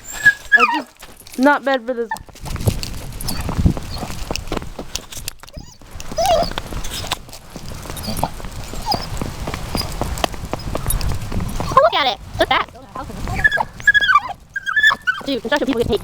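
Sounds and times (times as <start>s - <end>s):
puppy whining: 0.0s - 1.0s, 3.2s - 4.1s, 5.4s - 7.2s, 7.8s - 10.0s, 13.2s - 15.6s
footsteps outdoors: 0.0s - 16.0s
wind rumble on microphone: 0.0s - 16.0s.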